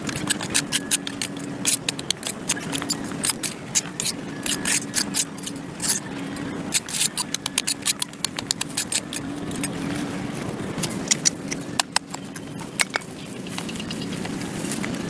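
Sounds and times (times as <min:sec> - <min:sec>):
hand tool scraping dirt on concrete: 0:00.0 - 0:06.1, 0:06.7 - 0:10.2.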